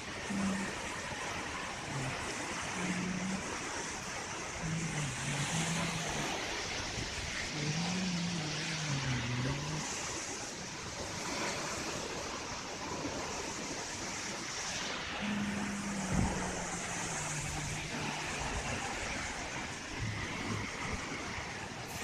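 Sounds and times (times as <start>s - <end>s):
low wavering tone: 0.0s - 10.4s, 14.8s - 22.0s
waterfall roaring: 0.0s - 22.0s.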